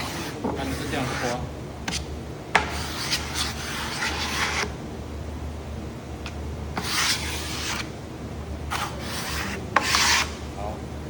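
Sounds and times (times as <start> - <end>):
scraper spreading glue on wood: 0.0 - 4.7, 6.8 - 7.9, 8.7 - 10.4.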